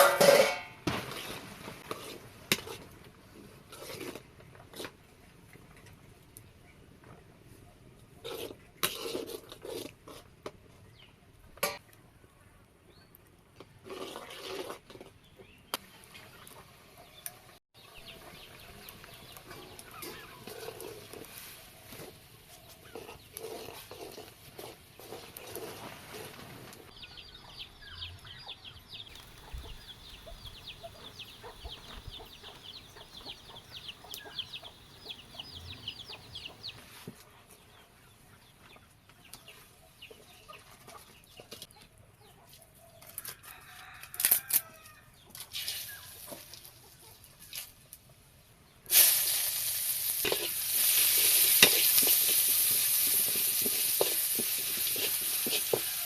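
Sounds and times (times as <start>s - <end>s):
chickens clucking: 26.9s - 36.8s
rapid high chirping: 29.1s - 36.8s
food sizzling in a hot pan: 48.9s - 56.0s.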